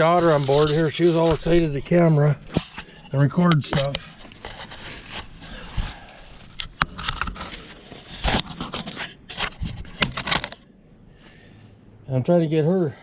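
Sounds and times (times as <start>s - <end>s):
metal tools scraping: 0.0s - 5.6s.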